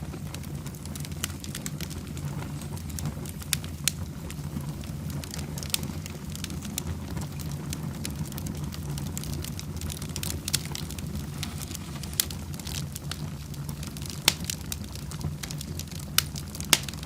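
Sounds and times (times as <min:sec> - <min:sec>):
low rumble of flames: 0:00.0 - 0:17.0
wood fire crackling and popping: 0:00.0 - 0:17.0.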